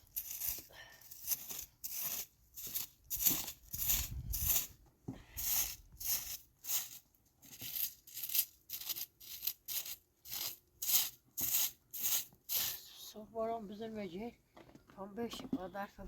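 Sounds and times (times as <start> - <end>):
footsteps crunching in snow: 0.0 - 4.8.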